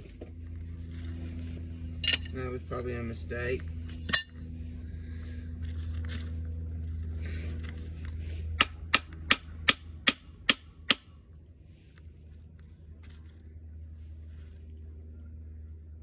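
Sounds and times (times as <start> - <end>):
steady low hum: 0.0 - 16.0
sharp metallic taps: 8.6 - 11.1.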